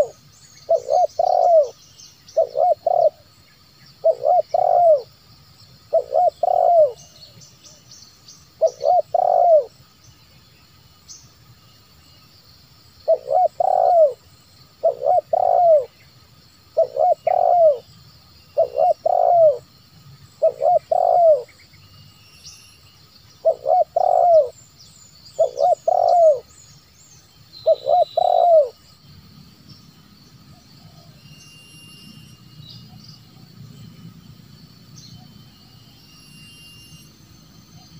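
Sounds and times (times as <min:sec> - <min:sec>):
dove cooing: 0:00.0 - 0:01.8, 0:02.4 - 0:03.3, 0:04.0 - 0:05.1, 0:05.9 - 0:07.0, 0:08.6 - 0:09.7, 0:13.1 - 0:14.2, 0:14.8 - 0:15.9, 0:16.8 - 0:17.8, 0:18.6 - 0:19.6, 0:20.4 - 0:21.5, 0:23.4 - 0:24.6, 0:25.4 - 0:26.5, 0:27.7 - 0:28.8
faint small bird chirps: 0:16.8 - 0:29.0, 0:29.6 - 0:34.3, 0:34.9 - 0:37.9.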